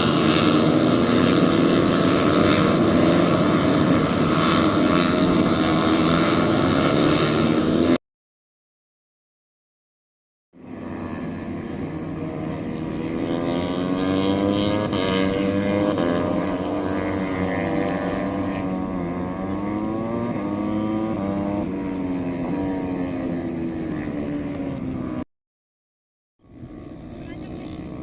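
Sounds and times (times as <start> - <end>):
distant racing motorcycle engines: 0.0 - 8.0, 10.6 - 25.3, 26.4 - 28.0.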